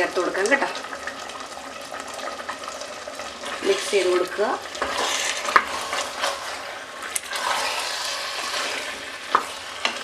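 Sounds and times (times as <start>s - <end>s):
curry sizzling in a pot: 0.0s - 10.0s
spatula scraping a pot: 3.4s - 10.0s.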